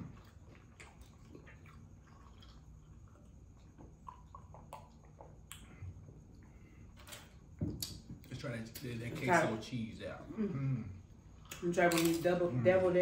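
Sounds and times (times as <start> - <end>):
faint chewing: 0.0 - 6.9
wet mouth clicks: 4.0 - 5.7.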